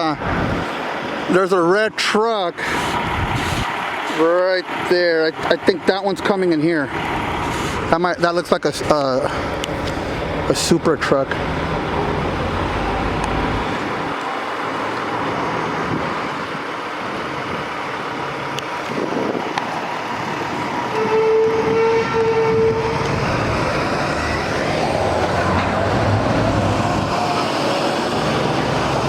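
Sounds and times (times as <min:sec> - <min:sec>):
trucks idling and moving: 0:00.0 - 0:29.0
truck horn: 0:20.9 - 0:23.3.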